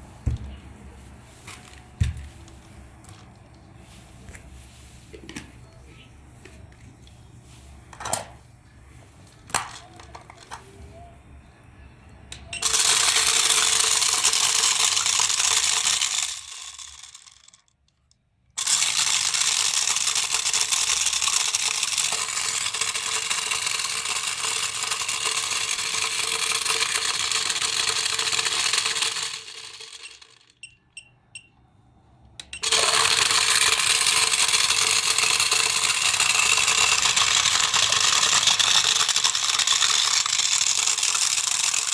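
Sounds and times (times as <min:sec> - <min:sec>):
electric toy whirring buzz: 0:12.6 - 0:17.7, 0:18.6 - 0:30.5, 0:32.6 - 0:41.9.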